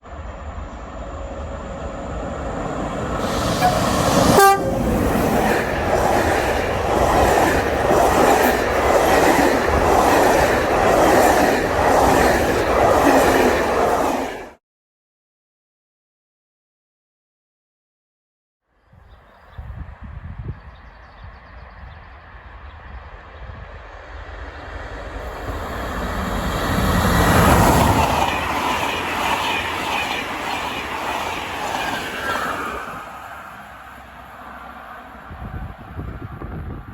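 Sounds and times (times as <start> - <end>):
train rumbling past: 0.0 - 14.6, 19.6 - 36.9
train horn blast: 3.2 - 5.2.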